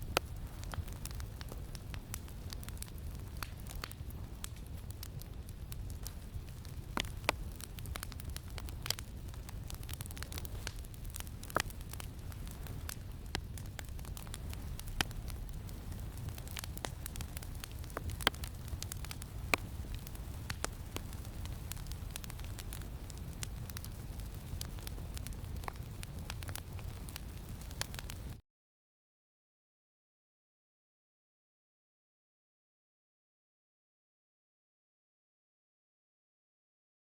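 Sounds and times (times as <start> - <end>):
wood fire crackling and popping: 0.0 - 28.4.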